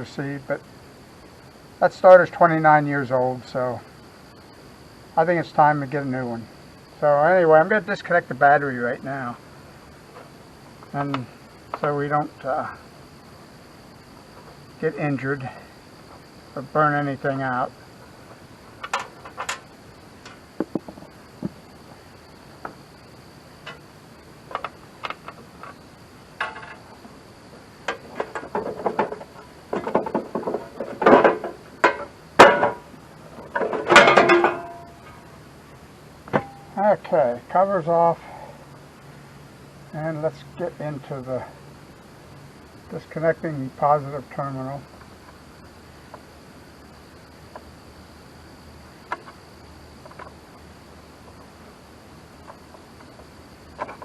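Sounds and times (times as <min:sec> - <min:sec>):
insect chirring: 0:00.0 - 0:54.0
tools and metal parts clinking: 0:33.4 - 0:35.0
metallic clank ringing: 0:33.6 - 0:35.2, 0:36.4 - 0:36.8.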